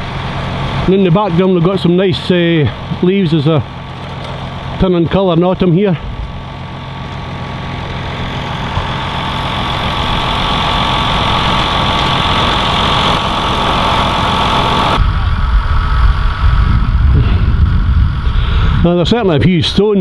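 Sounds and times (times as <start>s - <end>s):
tractor engine ploughing: 0.0s - 20.0s
deep low rumble: 3.6s - 19.5s.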